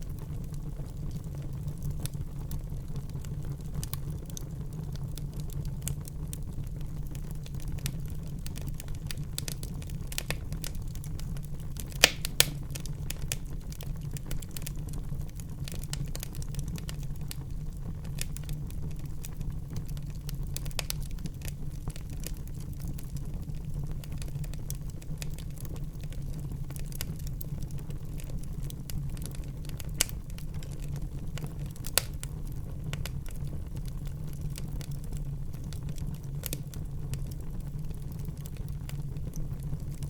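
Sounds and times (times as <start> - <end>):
wood fire crackling in fireplace: 0.0 - 40.0
sharp fire pops: 11.8 - 14.7.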